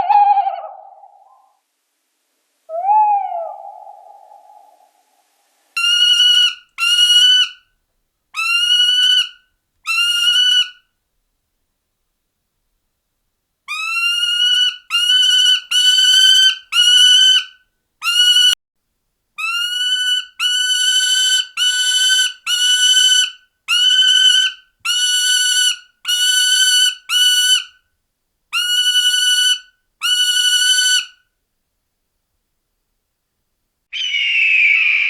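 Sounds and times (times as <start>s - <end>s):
bird of prey calling: 2.7s - 4.9s, 5.8s - 7.6s, 8.4s - 10.8s, 13.7s - 18.6s, 33.9s - 35.0s.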